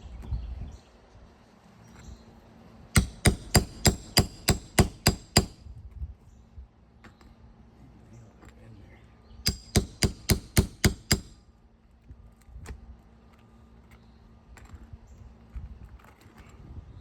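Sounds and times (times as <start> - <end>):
hammer striking metal: 3.0 - 5.6, 9.5 - 11.4.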